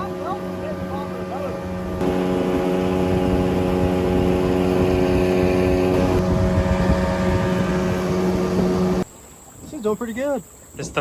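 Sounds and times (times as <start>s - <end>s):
boat engine running: 0.0s - 11.0s
rushing water: 0.0s - 11.0s
wind noise: 0.6s - 9.0s.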